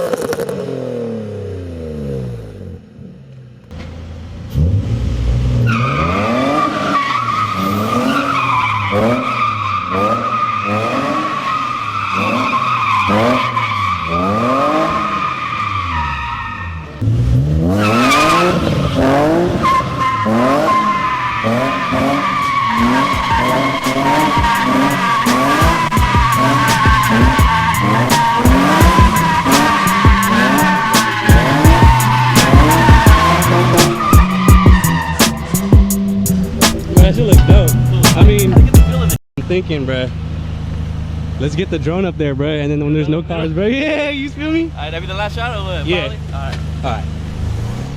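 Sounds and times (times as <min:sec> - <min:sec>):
car engine revving: 0:00.0 - 0:47.9
tyres squealing: 0:05.6 - 0:17.0, 0:17.8 - 0:39.2.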